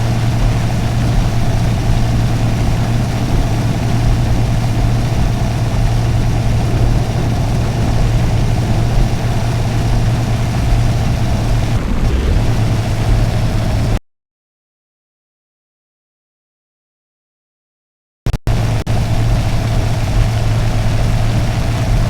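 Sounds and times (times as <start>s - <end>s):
car engine drone: 0.0s - 14.0s, 18.4s - 22.0s
road noise: 0.0s - 14.0s, 18.5s - 22.0s.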